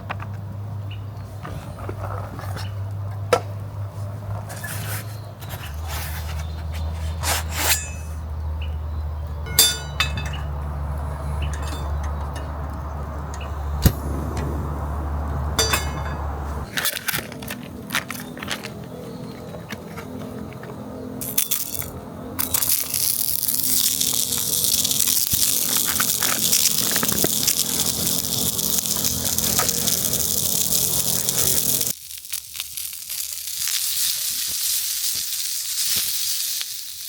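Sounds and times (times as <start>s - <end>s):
low steady hum: 9.0s - 32.0s
tableware clinking and scraping: 9.5s - 10.6s, 11.4s - 12.6s, 15.6s - 18.7s.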